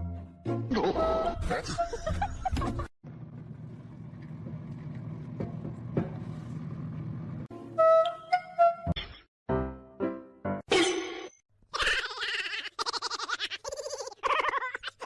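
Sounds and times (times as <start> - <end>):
music: 0.0 - 2.9, 7.5 - 10.7
low vehicle rumble: 3.1 - 7.5.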